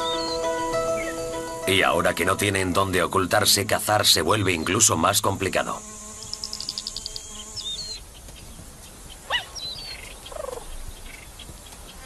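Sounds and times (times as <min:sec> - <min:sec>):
birds whistling and chirping: 0:00.0 - 0:01.5, 0:06.3 - 0:12.0
insect buzz: 0:04.4 - 0:08.2.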